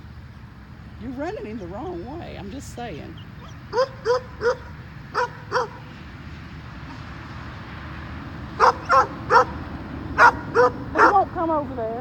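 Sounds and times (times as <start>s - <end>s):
dog yipping barks: 3.4s - 5.8s, 8.6s - 9.6s, 10.2s - 11.2s.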